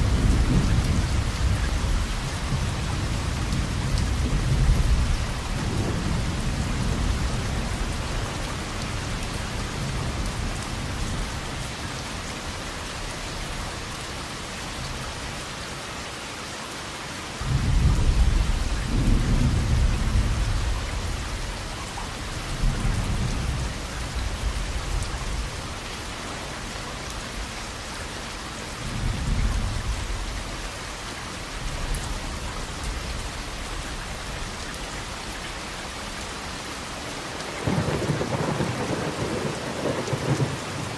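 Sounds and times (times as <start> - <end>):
steady rain falling: 0.0 - 40.9
rolling thunder: 37.6 - 40.9.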